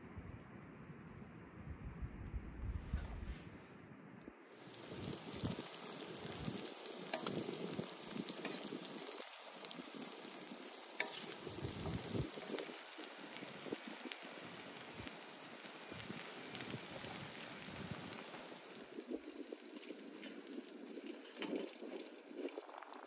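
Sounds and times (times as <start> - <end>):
food sizzling in iron pan: 4.5 - 23.0
fat spitting and crackling: 4.6 - 19.5.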